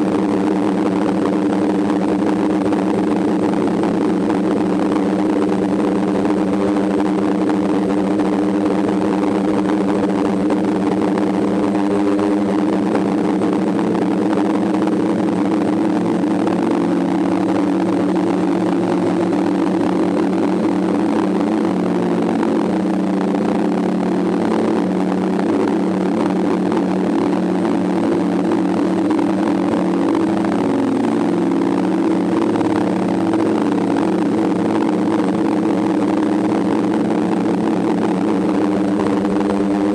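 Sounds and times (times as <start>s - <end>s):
drone propellers droning: 0.0s - 39.9s.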